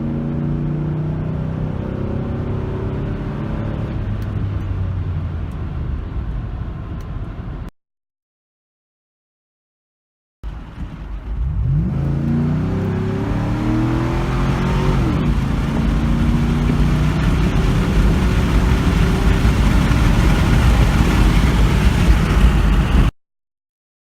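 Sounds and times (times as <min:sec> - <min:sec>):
car exhaust accelerating: 0:10.4 - 0:23.1
rushing noise: 0:10.5 - 0:23.1.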